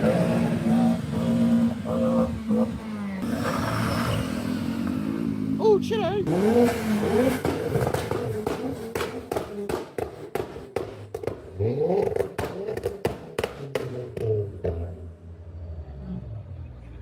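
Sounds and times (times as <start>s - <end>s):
car engine revving: 0.0s - 17.0s
exhaust pops and cracks: 6.3s - 14.9s.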